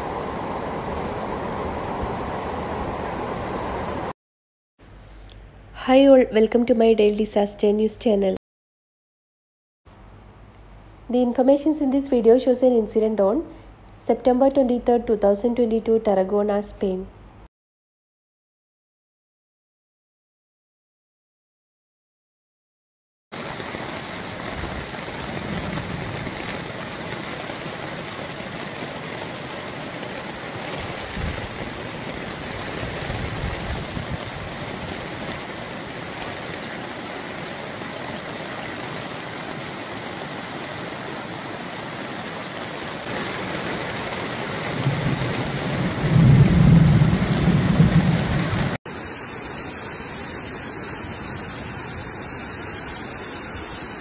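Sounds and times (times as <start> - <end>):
heavy rain pouring: 0.0 - 4.1, 23.4 - 54.0
steady rushing noise: 0.0 - 4.1
low thunder rumbles: 44.5 - 48.8.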